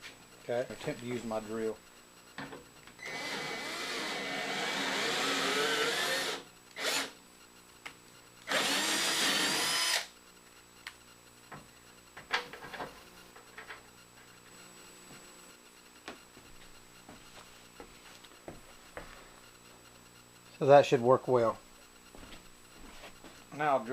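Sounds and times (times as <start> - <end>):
electric drill motor whining: 3.0 - 7.2, 8.5 - 10.1.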